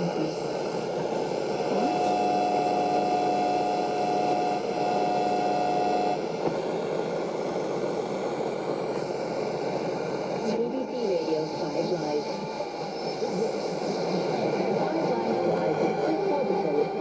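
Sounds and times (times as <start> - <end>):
radio static hiss: 0.0 - 17.0
steady whistle tone: 1.2 - 6.4.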